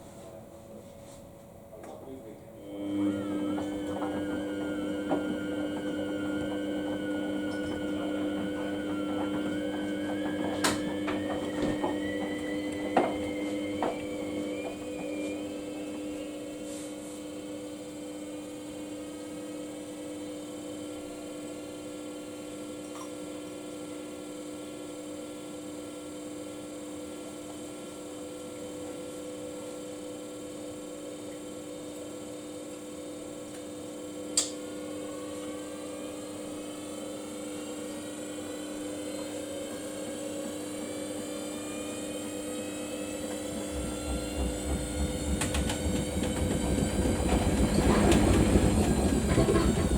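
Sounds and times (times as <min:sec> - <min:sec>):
washing machine motor hum: 0:00.0 - 0:49.9
spinning drum whine: 0:02.8 - 0:16.8, 0:40.1 - 0:49.9.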